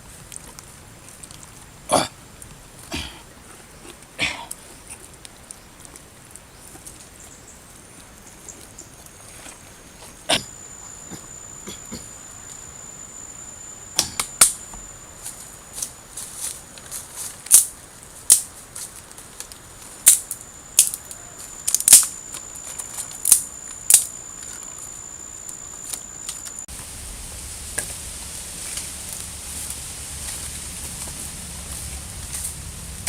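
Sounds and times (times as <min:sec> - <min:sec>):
steady hiss: 0:00.0 - 0:33.0
sharp irregular clicks and cracks: 0:16.8 - 0:17.7, 0:18.3 - 0:24.7.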